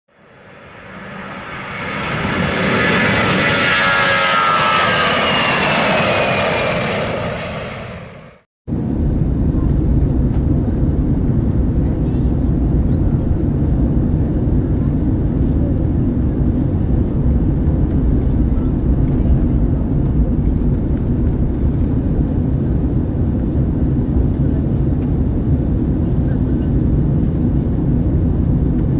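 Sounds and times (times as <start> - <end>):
jet engines droning: 0.1 - 28.9
airflow noise: 0.2 - 9.2.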